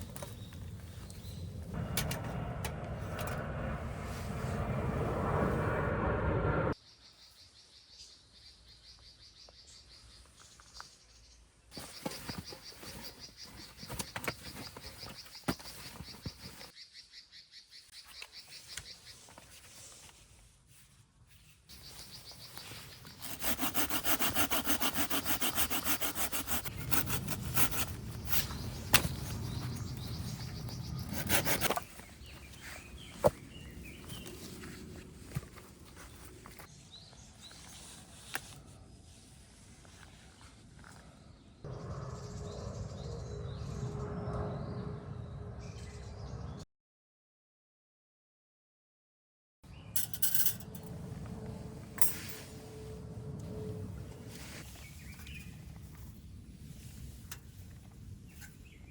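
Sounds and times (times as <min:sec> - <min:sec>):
hand saw cutting branch: 0:22.9 - 0:29.2, 0:30.9 - 0:31.9.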